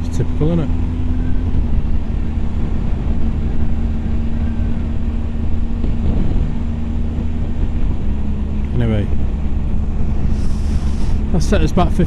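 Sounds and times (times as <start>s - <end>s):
motorcycle engine cruising: 0.0s - 12.0s
road noise: 0.0s - 12.0s
wind rumble: 0.7s - 12.0s.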